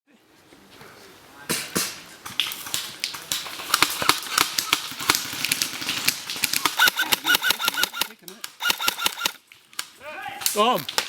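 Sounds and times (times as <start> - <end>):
airsoft rifles firing: 2.6 - 9.4.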